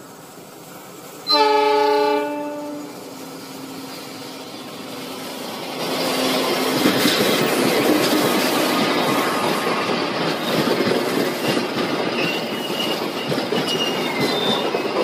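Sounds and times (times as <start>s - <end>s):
train approaching on rails: 0.0s - 15.0s
diesel locomotive horn blast: 1.2s - 3.1s.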